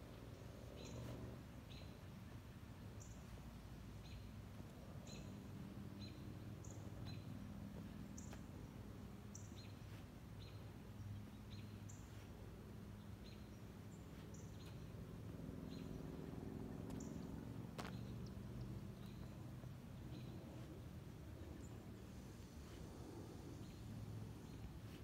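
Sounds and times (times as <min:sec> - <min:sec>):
low steady hum: 0:00.0 - 0:25.0
small birds chirping: 0:00.0 - 0:25.0.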